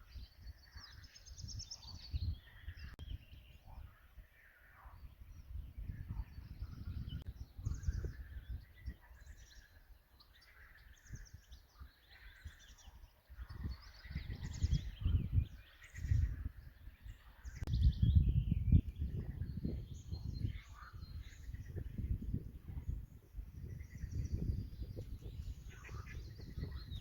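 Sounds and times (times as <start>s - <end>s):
songbirds singing: 0.0s - 27.0s
gusty low rumble: 17.7s - 27.0s.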